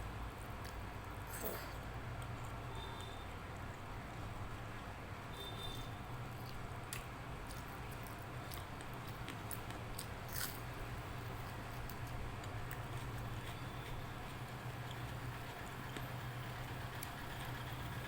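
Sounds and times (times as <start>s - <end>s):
person chewing food: 6.3s - 16.1s.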